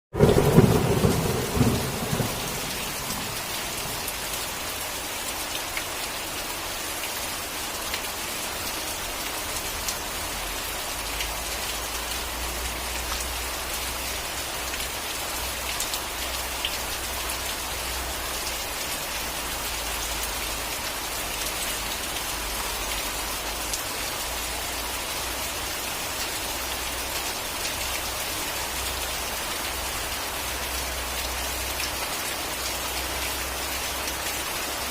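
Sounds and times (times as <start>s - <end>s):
thunder clap rolling: 0.1s - 4.2s
steady rain falling: 0.1s - 34.9s.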